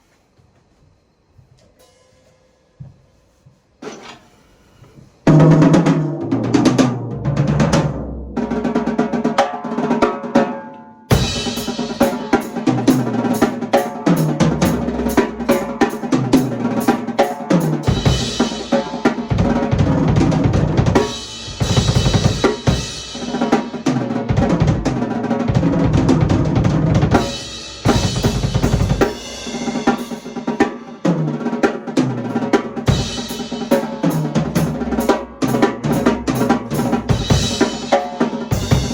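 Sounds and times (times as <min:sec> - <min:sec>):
drum kit groove: 0:11.1 - 0:38.9.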